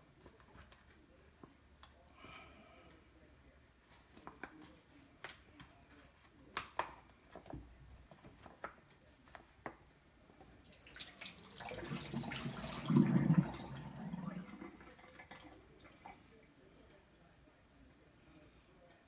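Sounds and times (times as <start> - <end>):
tap water pouring into bag: 10.4 - 16.2.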